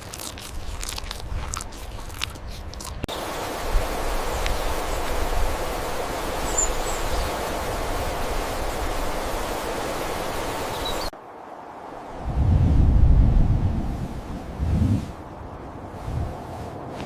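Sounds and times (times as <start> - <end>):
rushing hiss: 3.1 - 11.1
faint high chirp: 6.5 - 7.3.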